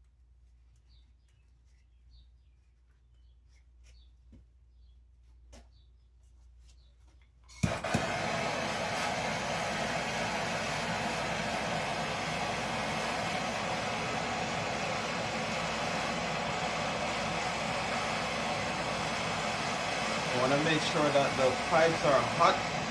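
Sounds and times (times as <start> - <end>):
torch igniter click: 7.6 - 10.2
gas torch hissing: 7.6 - 22.9.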